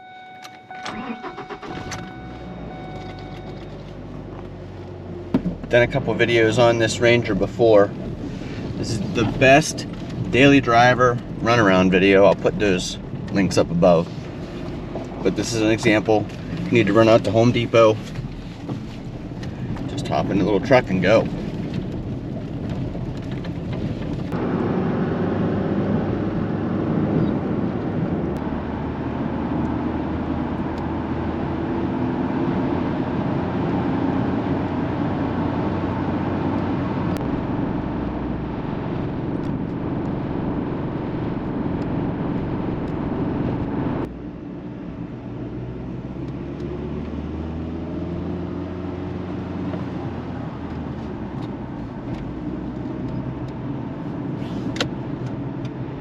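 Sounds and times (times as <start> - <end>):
pickup engine accelerating: 0.0 - 56.0
road noise: 0.0 - 56.0.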